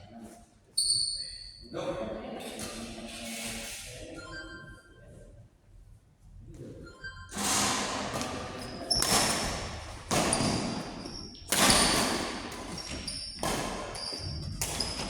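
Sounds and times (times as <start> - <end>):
shoe squeaks: 0.8 - 1.7, 8.4 - 15.0
ball hits echoing in hall: 7.3 - 15.0.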